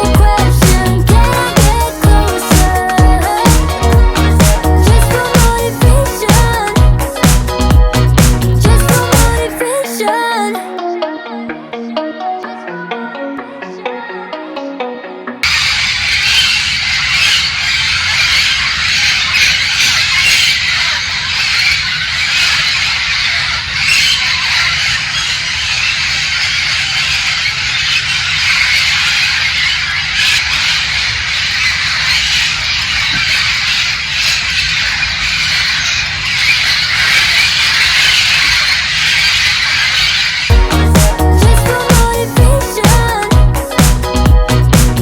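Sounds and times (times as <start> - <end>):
parrots squawking: 15.4 - 40.9.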